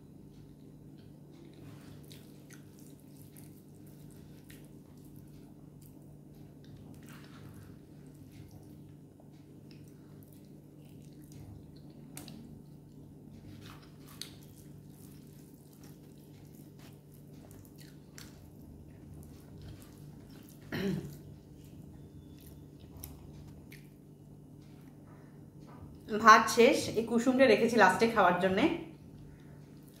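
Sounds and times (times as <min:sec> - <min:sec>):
low steady hum: 0:00.0 - 0:30.0
wet chewing and lip-smacking: 0:00.3 - 0:25.0, 0:29.1 - 0:30.0
fingers squishing food on a plate: 0:01.0 - 0:24.0.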